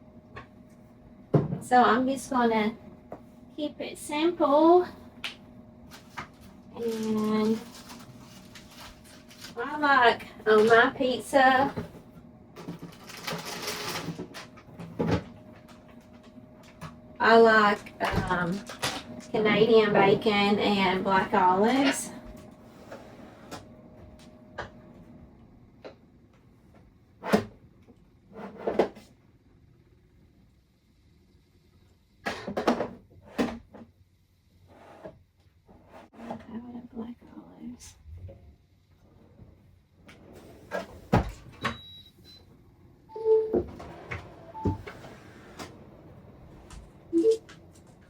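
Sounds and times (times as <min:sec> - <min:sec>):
cupboard doors opening and closing: 0:40.2 - 0:41.9.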